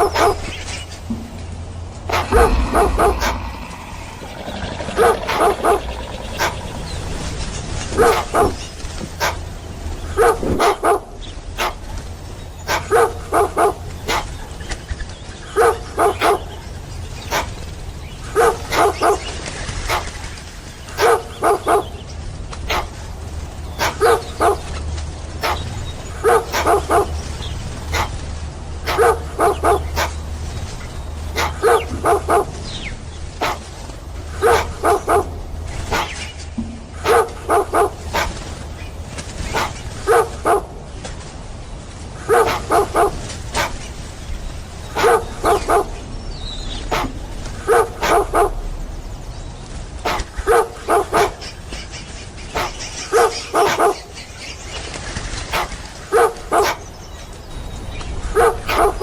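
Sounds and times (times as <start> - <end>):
dog barking: 0.1 - 0.4, 2.1 - 2.6, 8.0 - 8.6, 9.2 - 9.4, 10.2 - 11.9, 12.7 - 14.5, 15.6 - 16.4, 17.3 - 17.6, 18.4 - 19.2, 19.9 - 20.2, 21.0 - 21.8, 22.7 - 23.0, 23.8 - 24.6, 25.4 - 27.1, 27.9 - 28.2, 28.8 - 30.2, 31.3 - 32.6, 33.4 - 33.7, 34.4 - 35.3, 35.9 - 36.3, 37.0 - 38.5, 39.5 - 40.7, 42.3 - 43.9, 44.9 - 46.0, 46.9 - 48.5, 50.0 - 51.4, 52.6 - 54.1, 55.5 - 56.9, 58.4 - 59.0.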